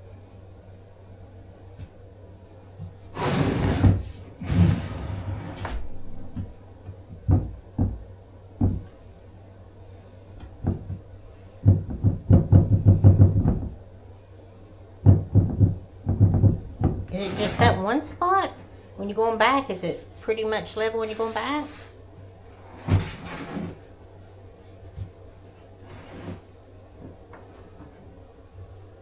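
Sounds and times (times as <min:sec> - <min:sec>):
tiles scraping on floor: 0:03.1 - 0:05.9, 0:17.1 - 0:18.0, 0:20.9 - 0:22.0, 0:22.6 - 0:24.0, 0:25.8 - 0:26.4.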